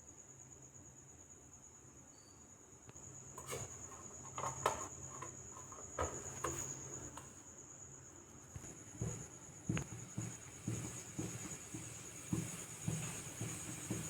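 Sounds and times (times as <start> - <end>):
sharp knocks and clatters: 8.6 - 14.0.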